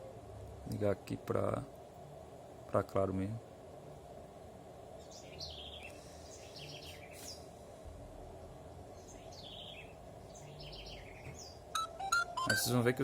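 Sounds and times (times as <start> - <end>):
faint steady hum: 0.0 - 13.0
bird chirping: 5.0 - 7.5, 8.9 - 13.0.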